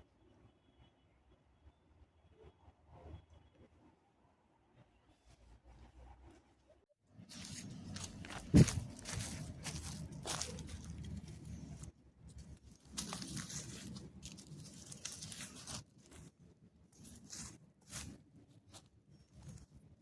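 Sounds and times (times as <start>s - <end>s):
dry leaves and twigs crunching: 7.2s - 20.0s.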